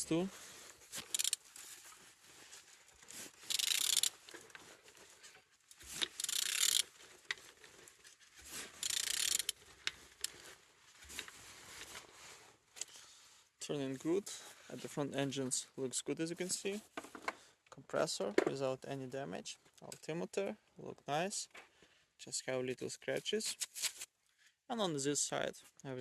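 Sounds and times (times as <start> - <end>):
mechanical rasps: 1.0 - 1.4, 3.4 - 4.1, 6.0 - 6.8, 8.8 - 9.6.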